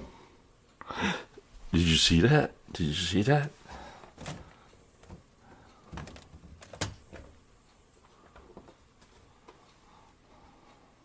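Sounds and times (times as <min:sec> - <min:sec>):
faint refrigerator clicks and knocks: 0:03.8 - 0:07.4.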